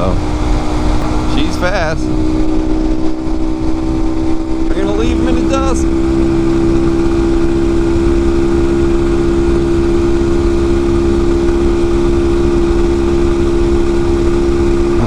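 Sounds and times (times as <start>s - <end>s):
motorcycle engine running hard: 0.0s - 15.0s.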